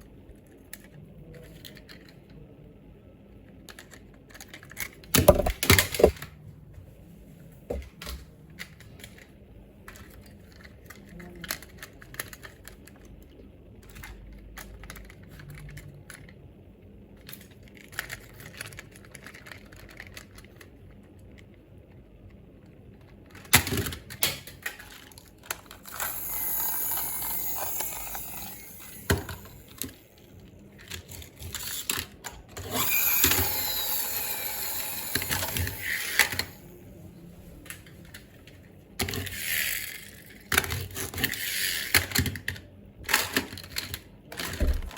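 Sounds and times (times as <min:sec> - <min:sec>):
plastic toy cars clicking: 0:00.3 - 0:02.4, 0:03.4 - 0:06.3, 0:08.6 - 0:16.4, 0:17.1 - 0:36.6, 0:37.6 - 0:44.9
steady mechanical noise: 0:04.7 - 0:06.3, 0:24.9 - 0:38.2, 0:44.4 - 0:44.9.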